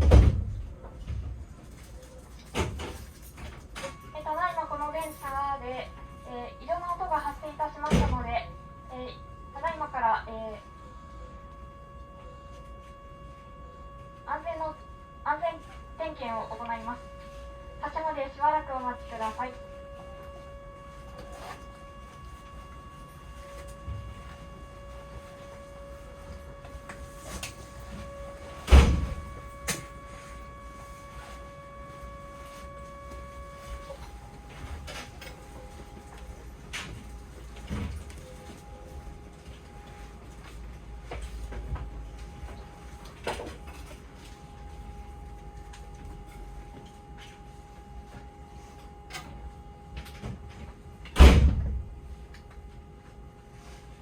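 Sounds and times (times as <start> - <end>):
train door banging shut: 0.0 - 1.3, 7.8 - 8.3, 28.6 - 29.9, 51.0 - 51.9
electrical hum of train: 0.0 - 54.0
faint equipment whine: 0.0 - 54.0.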